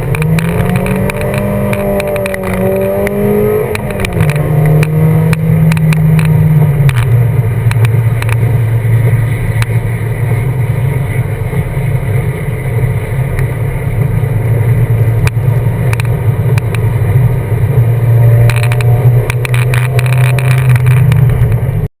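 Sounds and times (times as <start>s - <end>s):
sharp clicks: 0.0s - 7.1s
car engine at high revs: 0.0s - 21.9s.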